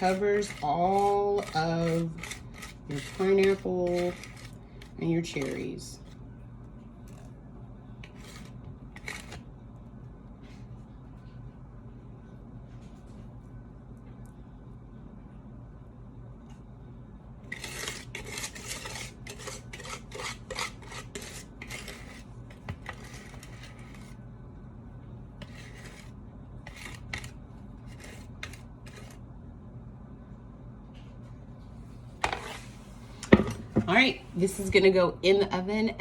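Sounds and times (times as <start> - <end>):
utensil scraping batter in bowl: 0.0 - 6.1, 8.0 - 9.4, 17.5 - 24.2, 25.4 - 29.2, 32.2 - 33.0.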